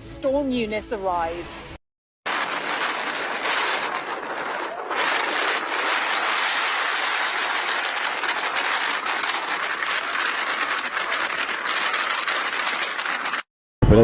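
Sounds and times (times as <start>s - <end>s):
strong storm wind rushing: 2.3s - 13.5s.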